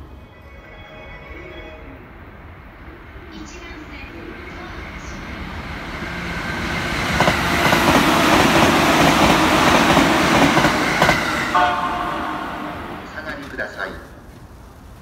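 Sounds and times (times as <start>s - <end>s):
train wheels rushing on rails: 0.0s - 15.0s
wheels clacking over rail joints: 6.2s - 11.6s.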